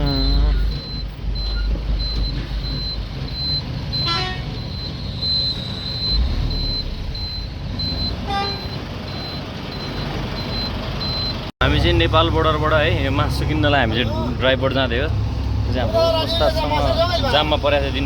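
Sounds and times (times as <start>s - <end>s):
repeating high beep: 0.0s - 11.4s
truck engine running: 0.0s - 18.0s
truck horn toots: 4.0s - 4.7s, 8.2s - 8.8s.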